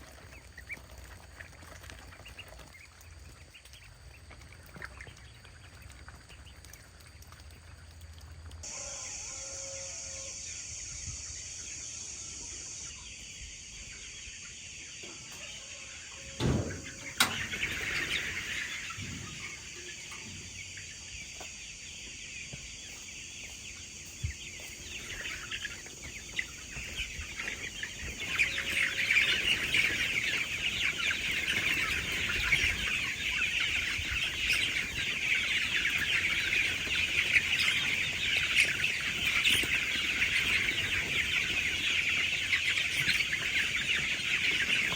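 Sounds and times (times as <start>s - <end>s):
chickens clucking: 0.0s - 44.9s
thump: 16.4s - 17.4s.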